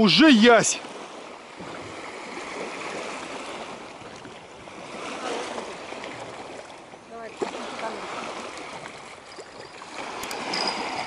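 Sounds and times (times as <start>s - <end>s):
rush of moving water: 0.0s - 11.0s
wind noise: 8.2s - 11.0s.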